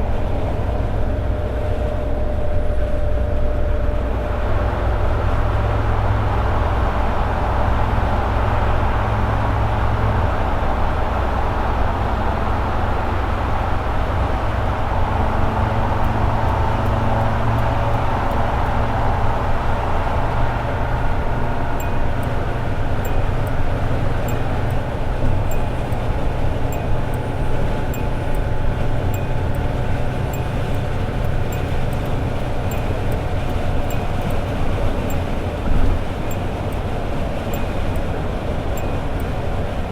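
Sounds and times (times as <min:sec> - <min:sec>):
car engine cruising: 0:00.0 - 0:39.9
road noise: 0:00.0 - 0:39.9.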